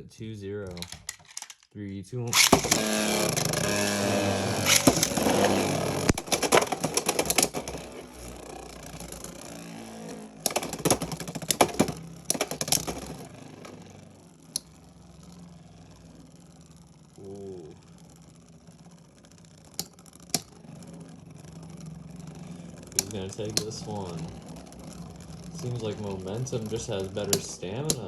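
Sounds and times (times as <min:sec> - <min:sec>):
tops clacking together: 0:00.7 - 0:01.6, 0:02.3 - 0:08.0, 0:10.4 - 0:13.8
spinning tops whirring: 0:02.3 - 0:28.0.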